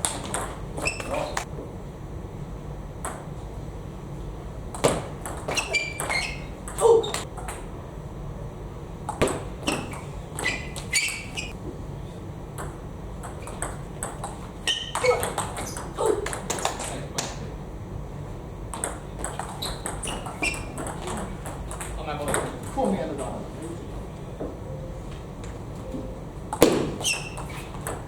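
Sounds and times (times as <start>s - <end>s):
table tennis ball pinging: 0.0s - 1.5s, 4.7s - 7.7s, 9.0s - 11.6s, 12.5s - 16.9s, 18.7s - 22.8s, 25.9s - 28.0s
brief squeaks: 0.8s - 1.5s, 5.5s - 7.2s, 9.6s - 11.6s, 14.6s - 15.9s, 19.5s - 21.2s, 26.9s - 27.8s.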